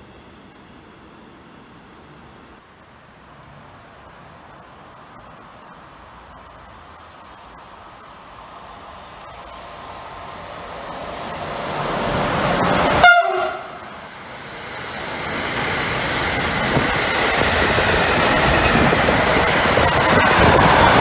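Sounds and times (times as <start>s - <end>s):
train running noise: 0.0s - 21.0s
train horn blast: 12.9s - 13.9s.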